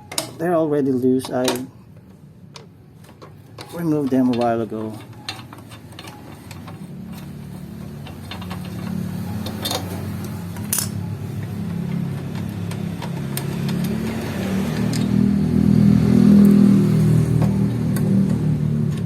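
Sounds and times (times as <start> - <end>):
vehicle engine running: 6.7 - 19.0.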